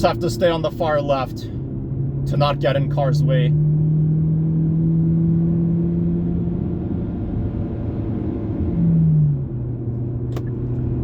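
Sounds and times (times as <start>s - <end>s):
car engine and tyre hum: 0.0s - 11.0s.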